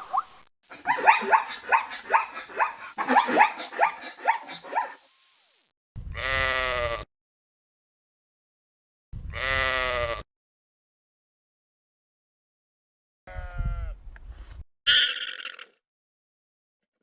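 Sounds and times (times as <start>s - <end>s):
high rising animal yelps: 0.7s - 5.1s
long animal bleat: 6.1s - 7.1s, 9.2s - 10.3s, 13.3s - 14.0s.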